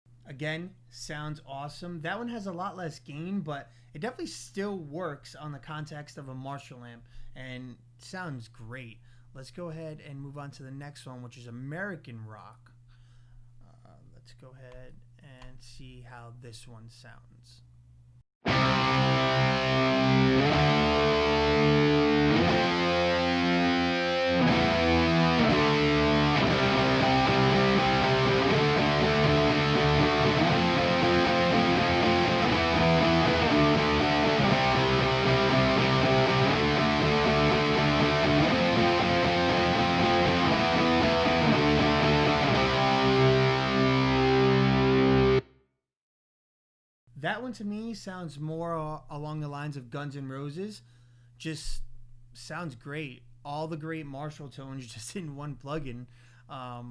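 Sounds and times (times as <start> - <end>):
distorted electric guitar chords: 18.4 - 45.5.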